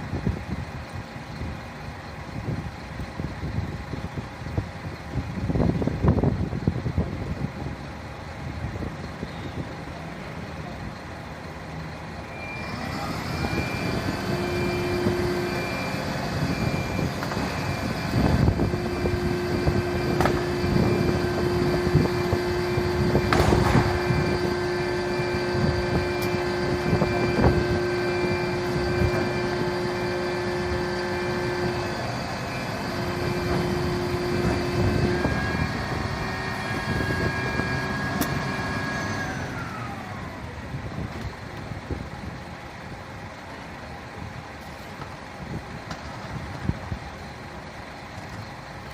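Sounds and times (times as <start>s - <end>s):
fire truck engine hum: 0.0s - 48.9s
beeping warning tone: 12.2s - 38.7s.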